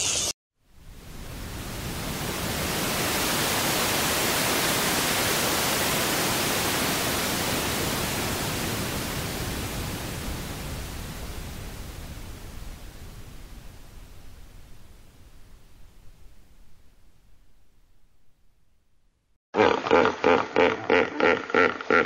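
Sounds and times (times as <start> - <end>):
steady rushing hiss: 0.0 - 17.3.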